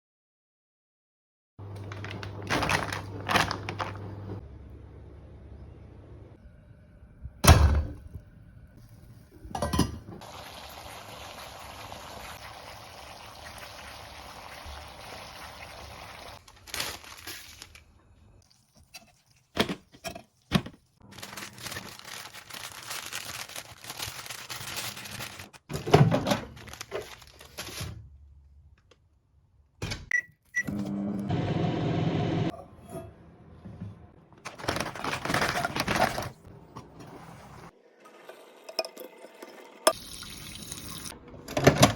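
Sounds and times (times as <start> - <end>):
cookware and utensils knocking: 9.6 - 10.1.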